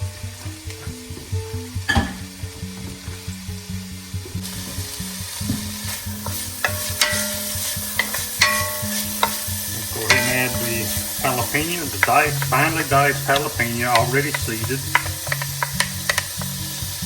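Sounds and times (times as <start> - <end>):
vegetables sizzling in oil: 0.0 - 17.0
utensil stirring and scraping: 5.7 - 17.0.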